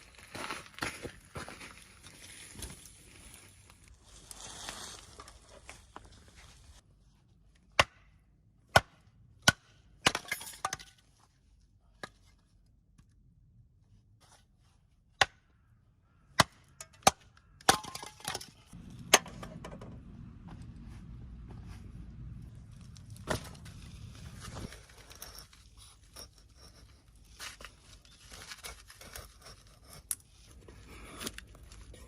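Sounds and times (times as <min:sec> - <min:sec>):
low steady rumble: 0:18.8 - 0:25.7.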